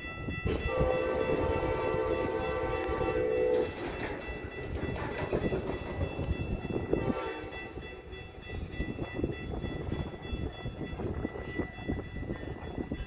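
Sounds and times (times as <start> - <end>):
train rumbling on rails: 0.0 - 13.0
train horn: 0.5 - 3.8, 6.9 - 7.7.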